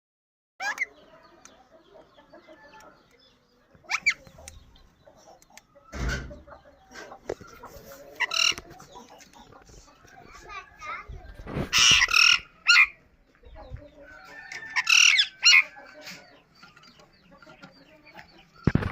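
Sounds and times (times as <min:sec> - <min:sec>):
birds chirping: 0:00.6 - 0:18.9
harsh bird call: 0:11.5 - 0:13.0.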